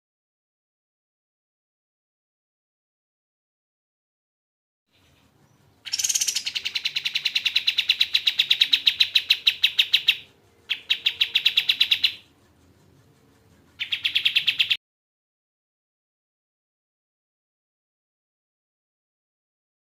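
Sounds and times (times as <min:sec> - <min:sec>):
bird calling in rapid trills: 0:04.9 - 0:12.4, 0:13.1 - 0:14.8.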